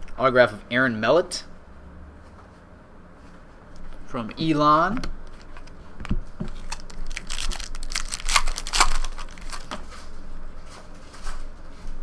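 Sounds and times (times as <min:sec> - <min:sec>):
foil wrapper crinkling and tearing: 0:06.5 - 0:09.8.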